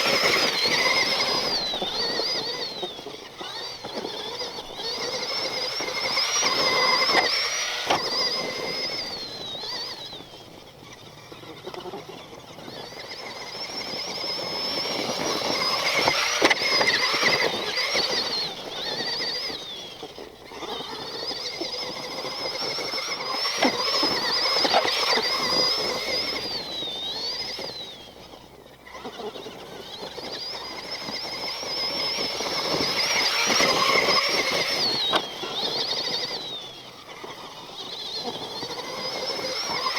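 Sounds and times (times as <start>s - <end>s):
rc truck motor whining: 0.0s - 39.9s.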